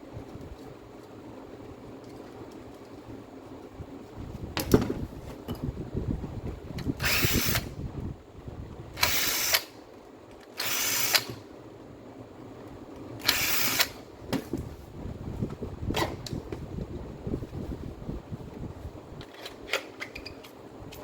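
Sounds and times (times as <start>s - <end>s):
angle grinder bursts: 7.0s - 7.7s, 9.0s - 9.7s, 10.5s - 11.4s, 13.2s - 14.0s.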